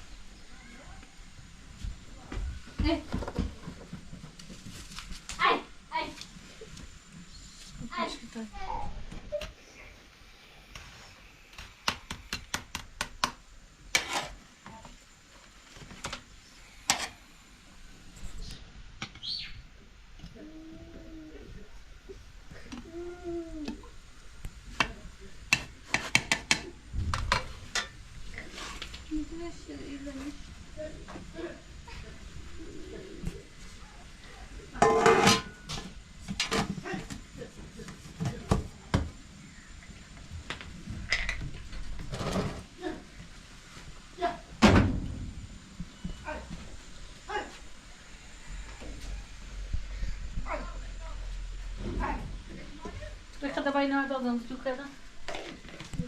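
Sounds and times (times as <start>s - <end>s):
pots and utensils clattering: 34.8s - 36.7s.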